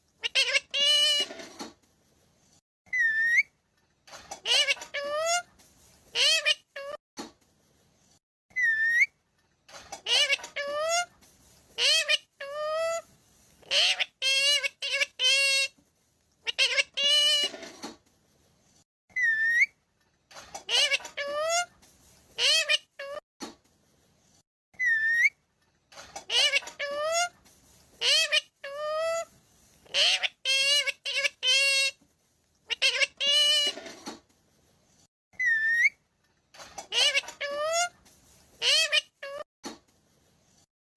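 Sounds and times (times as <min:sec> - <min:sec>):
parrot calling: 0:00.2 - 0:01.5, 0:02.9 - 0:03.5, 0:04.4 - 0:05.5, 0:06.1 - 0:07.0, 0:08.5 - 0:09.1, 0:10.0 - 0:11.1, 0:11.8 - 0:13.0, 0:13.6 - 0:15.8, 0:16.4 - 0:17.7, 0:19.1 - 0:19.8, 0:20.6 - 0:21.7, 0:22.4 - 0:23.2, 0:24.8 - 0:25.4, 0:26.2 - 0:27.4, 0:28.0 - 0:32.0, 0:32.7 - 0:34.0, 0:35.4 - 0:36.0, 0:36.7 - 0:38.0, 0:38.6 - 0:39.4
parrot whistle: 0:02.9 - 0:03.5, 0:08.5 - 0:09.1, 0:19.1 - 0:19.8, 0:24.7 - 0:25.4, 0:35.4 - 0:36.0.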